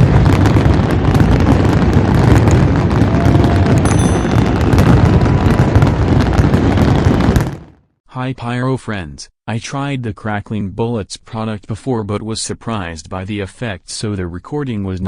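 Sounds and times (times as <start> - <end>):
fireworks crackling: 0.0 - 7.7
low rumble: 3.8 - 6.4.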